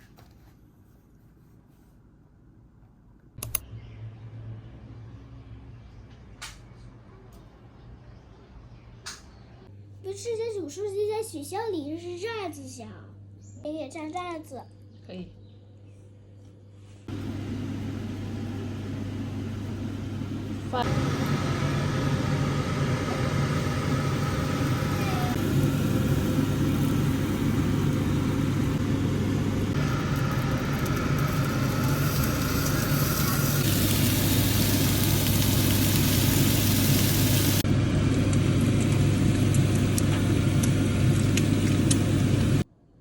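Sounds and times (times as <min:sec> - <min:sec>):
steady low hum: 0:14.6 - 0:43.0.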